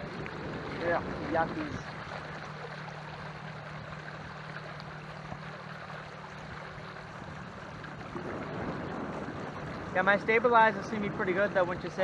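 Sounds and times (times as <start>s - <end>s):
wind noise: 0.0s - 2.1s, 6.5s - 12.0s
low even hum: 0.0s - 12.0s
water washing against canoe: 0.0s - 12.0s.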